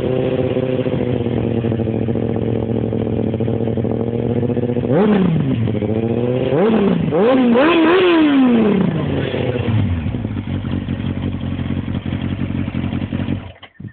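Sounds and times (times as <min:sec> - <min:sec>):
motorcycle engine revving and idling: 0:00.0 - 0:13.9.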